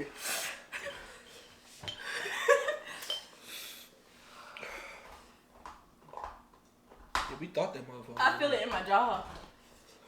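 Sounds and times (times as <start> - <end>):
people breathing hard: 3.4 - 5.5.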